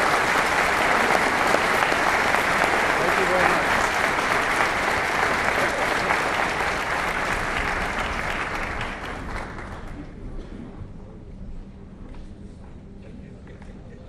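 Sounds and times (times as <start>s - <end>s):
large audience applauding: 0.0s - 10.2s.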